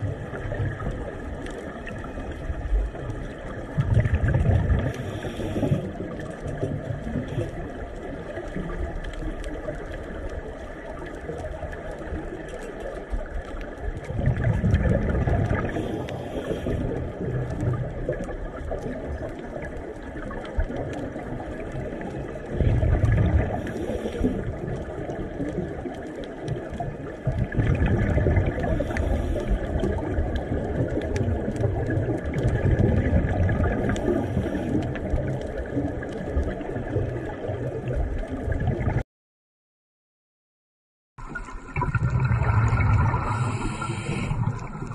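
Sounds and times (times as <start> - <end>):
diver exhaling bubbles: 0.0 - 7.8, 14.0 - 19.4, 22.4 - 25.8, 27.2 - 39.0, 41.2 - 44.9
underwater water noise: 0.0 - 39.0, 41.2 - 44.9.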